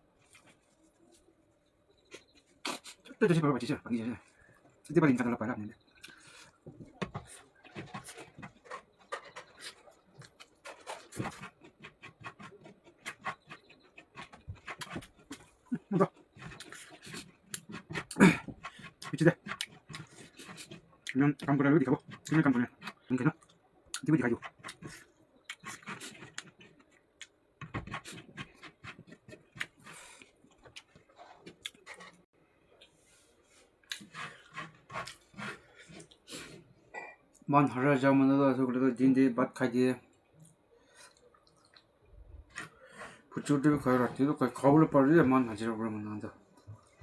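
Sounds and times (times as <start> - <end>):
person chewing: 7.2 - 32.2, 33.8 - 36.5
chewing and lip-smacking: 28.5 - 32.2, 40.2 - 41.9.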